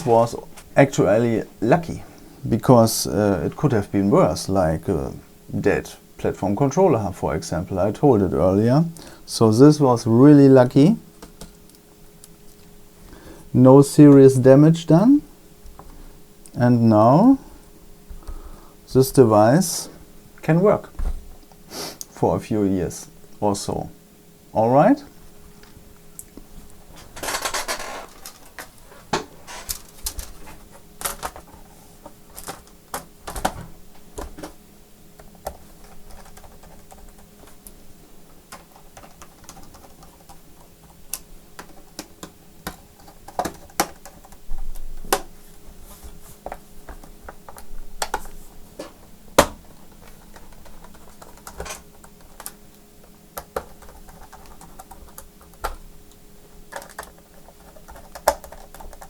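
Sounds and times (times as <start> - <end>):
scraping rustle: 26.9 - 32.0
clicks and clatter of parts: 27.0 - 34.6.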